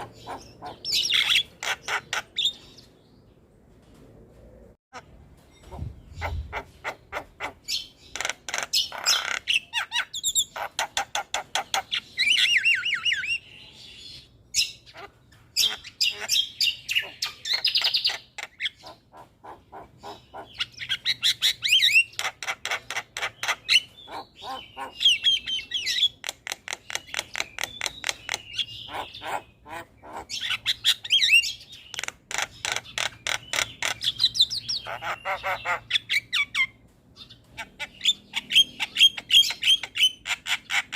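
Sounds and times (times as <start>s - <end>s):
bird singing clicks and whistles: 31.8s - 34.2s.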